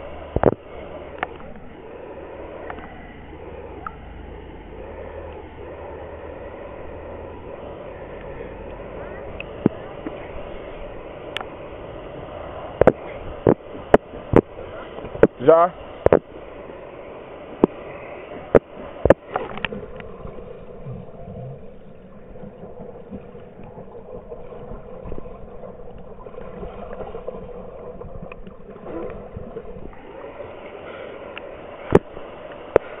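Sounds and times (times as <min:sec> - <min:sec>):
waterfall rushing: 0:28.7 - 0:33.0.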